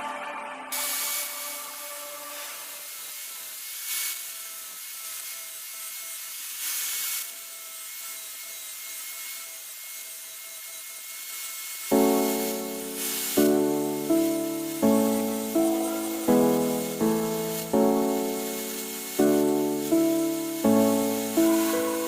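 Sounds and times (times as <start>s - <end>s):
steady hiss: 0.7s - 7.3s, 11.9s - 22.0s
piano-like music: 11.9s - 22.0s
rubbing strokes on wood: 12.2s - 22.0s.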